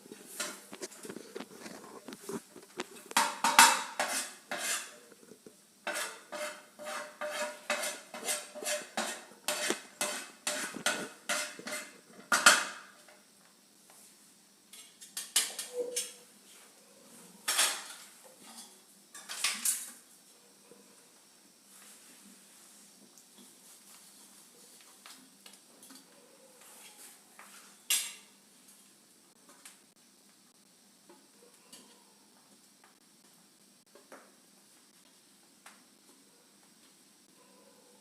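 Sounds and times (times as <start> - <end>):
spoon scraping a bowl: 0.3 - 12.7.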